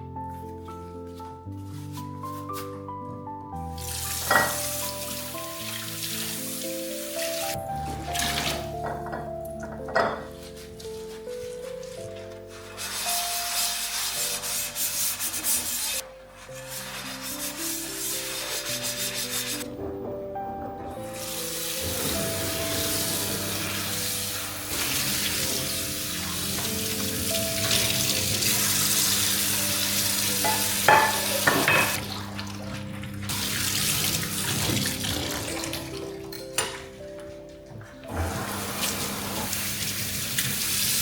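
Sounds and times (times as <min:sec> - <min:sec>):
soft background music: 0:00.0 - 0:41.0
tap water running into sink: 0:03.7 - 0:10.3, 0:20.0 - 0:36.8, 0:38.1 - 0:41.0.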